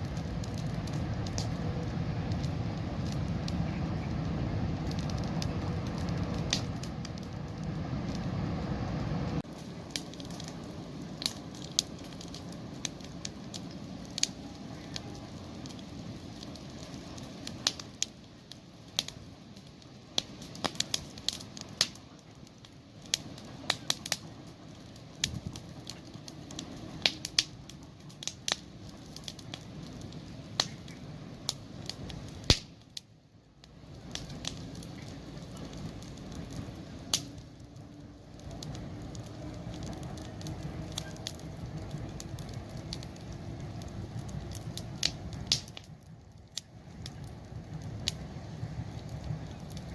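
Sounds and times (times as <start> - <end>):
campfire crackling and popping: 0.0 - 49.9
low hiss of burning: 0.0 - 49.9.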